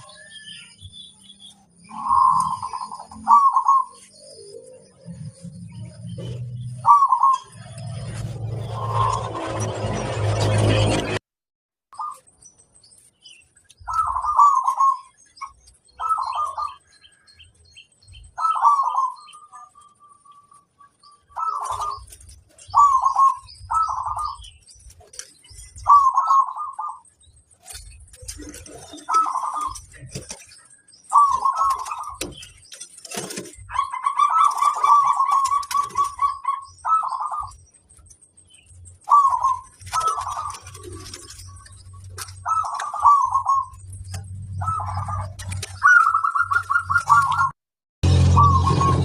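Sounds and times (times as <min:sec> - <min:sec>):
dove cooing trilled phrases: 0:01.8 - 0:05.2, 0:06.0 - 0:08.1, 0:13.8 - 0:16.9, 0:18.2 - 0:37.9, 0:38.9 - 0:47.6.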